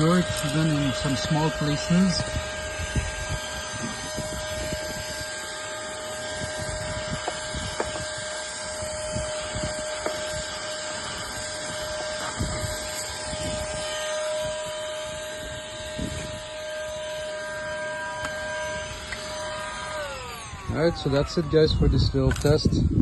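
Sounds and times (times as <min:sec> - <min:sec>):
handheld vacuum whining: 0:00.0 - 0:23.0
vacuum nozzle knocking and scraping: 0:07.1 - 0:08.1.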